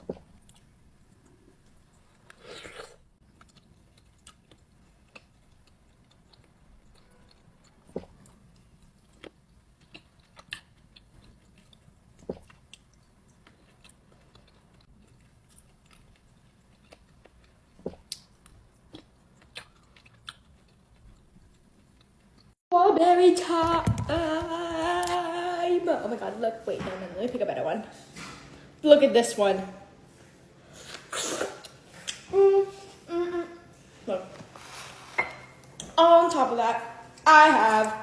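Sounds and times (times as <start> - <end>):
chewing and biting fruit: 2.0 - 22.6.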